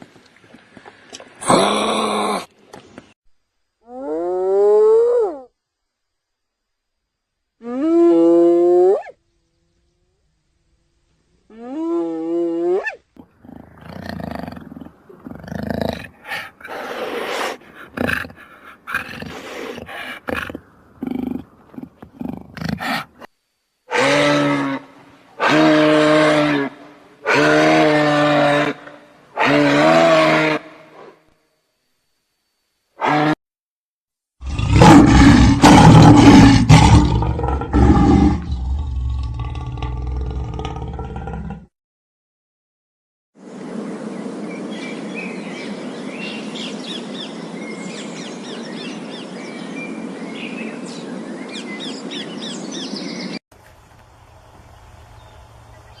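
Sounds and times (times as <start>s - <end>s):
rough breathy roaring calls: 13.2s - 23.3s, 34.4s - 41.7s
large animal roaring: 34.4s - 41.7s.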